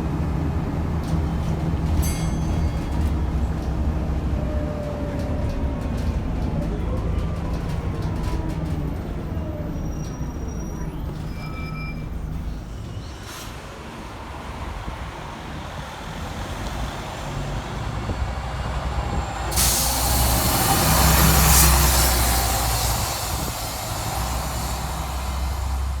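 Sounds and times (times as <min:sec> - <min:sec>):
bus engine rumbling: 0:00.0 - 0:26.0
compressed air hiss: 0:19.5 - 0:26.0.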